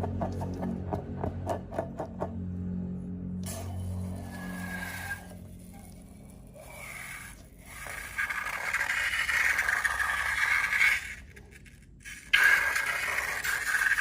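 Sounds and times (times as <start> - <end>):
slime squishing and scraping: 4.1 - 14.0.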